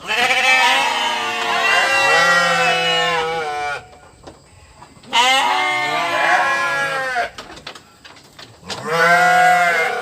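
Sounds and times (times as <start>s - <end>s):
sheep bleating: 0.0s - 3.9s, 5.1s - 7.3s, 8.8s - 10.0s.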